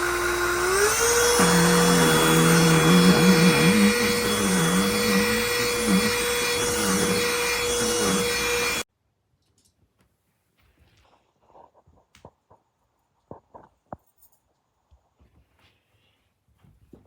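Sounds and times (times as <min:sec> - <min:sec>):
handheld vacuum running: 0:00.0 - 0:08.8.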